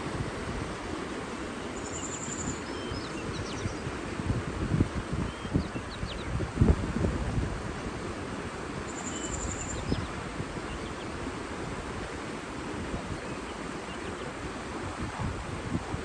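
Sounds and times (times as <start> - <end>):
rushing water: 0.0 - 16.0
wind gusting over microphone: 0.0 - 16.0
bird chirps: 1.8 - 3.8, 8.9 - 10.1.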